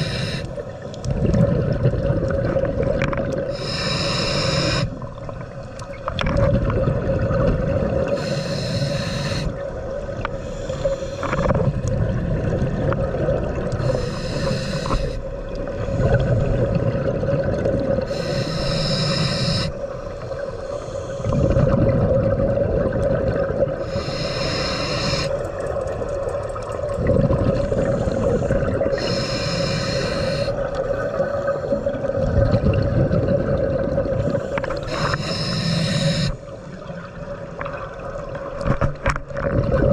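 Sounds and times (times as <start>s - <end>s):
regulator inhale hiss: 0.0s - 0.8s, 3.5s - 5.0s, 8.1s - 9.6s, 10.2s - 11.6s, 13.8s - 16.4s, 18.0s - 21.5s, 23.8s - 25.4s, 27.6s - 32.0s, 34.3s - 36.8s
exhaled bubbles rumbling: 1.0s - 3.7s, 4.4s - 8.3s, 11.2s - 24.1s, 25.4s - 39.9s.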